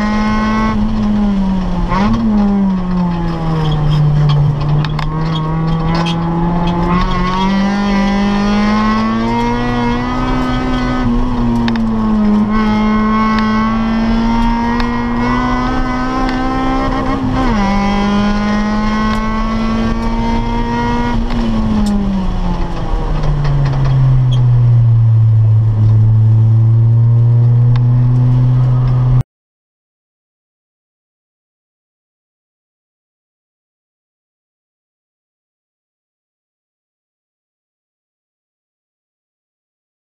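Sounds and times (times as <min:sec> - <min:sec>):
car engine revving: 0:00.0 - 0:29.2.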